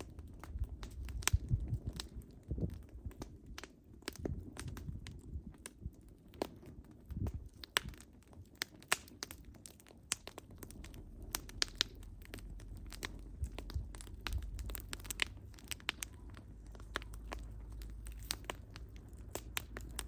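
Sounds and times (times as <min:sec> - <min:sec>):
burning logs crackling and popping: 0:00.0 - 0:20.0
low rumble of flames: 0:00.0 - 0:20.0.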